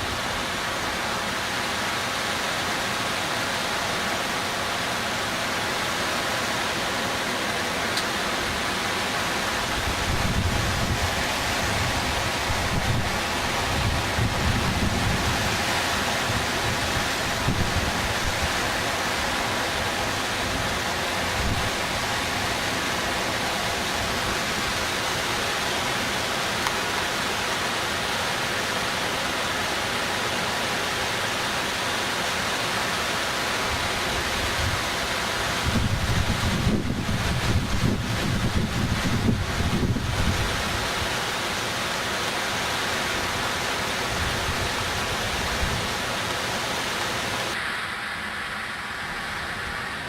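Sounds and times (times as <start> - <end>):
rushing floodwater: 0.0 - 50.0
wind buffeting microphone: 9.5 - 18.8, 35.5 - 41.1.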